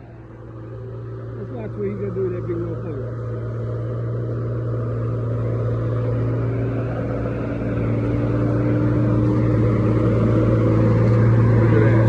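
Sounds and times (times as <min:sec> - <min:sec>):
large engine droning: 0:00.0 - 0:12.0.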